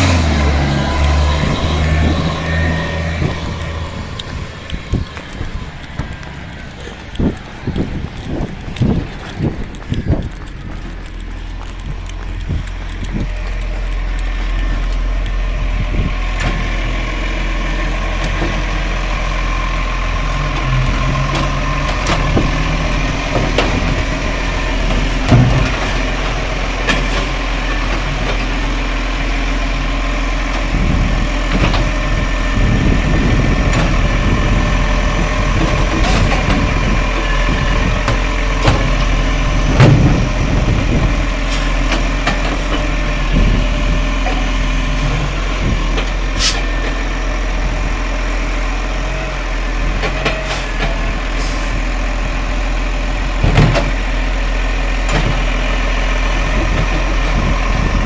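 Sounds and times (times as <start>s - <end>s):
garbage truck engine running: 0.0s - 58.0s
sharp knocks and clunks: 24.8s - 27.4s, 37.8s - 43.7s, 53.4s - 54.0s.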